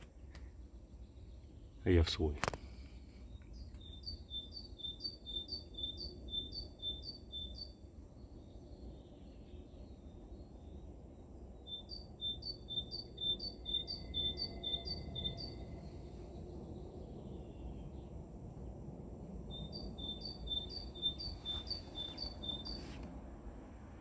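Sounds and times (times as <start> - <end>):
songbird singing two-note phrases: 11.7 - 15.8, 19.5 - 23.0.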